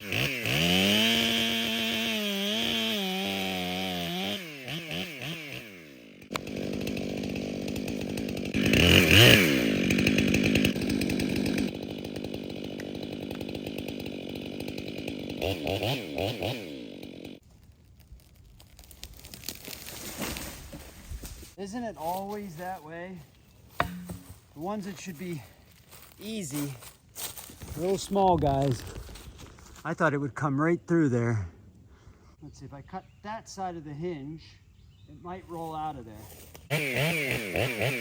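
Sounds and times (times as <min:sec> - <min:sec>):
chainsaw cutting through tree: 0:00.0 - 0:17.4, 0:23.7 - 0:29.2, 0:35.6 - 0:38.0.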